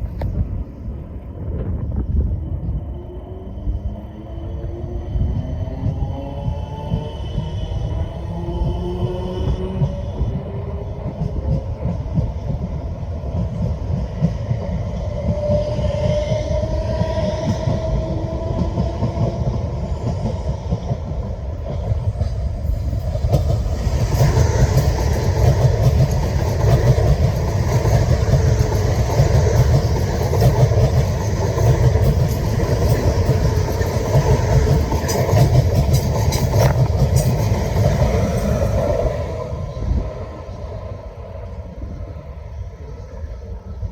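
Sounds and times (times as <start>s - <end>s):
train rumbling: 0.0s - 43.9s
train whine: 0.0s - 43.9s
wheels clicking over rail joints: 20.2s - 38.8s.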